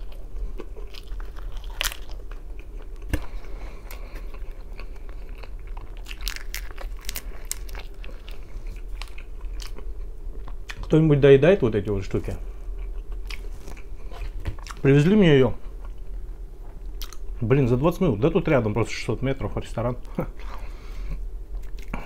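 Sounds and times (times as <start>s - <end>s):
person chewing crunchy pizza: 0.0s - 11.0s, 12.5s - 14.9s, 15.6s - 17.3s, 20.1s - 22.0s.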